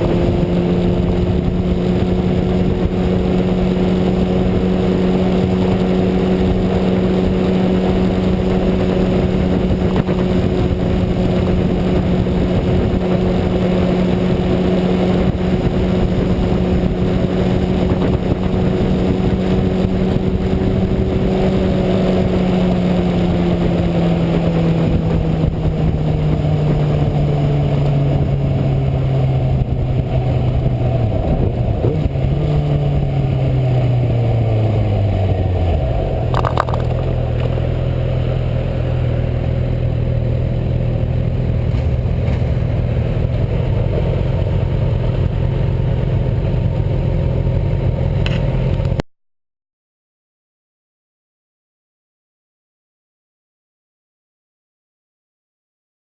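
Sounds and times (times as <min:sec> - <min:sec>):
wind rush: 0:00.0 - 0:37.7
motorcycle engine cruising: 0:00.0 - 0:49.0.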